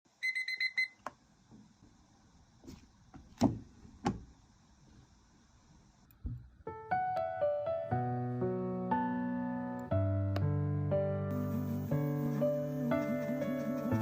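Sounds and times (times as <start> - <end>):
faint steady hiss: 0.2 - 6.8, 11.3 - 14.0.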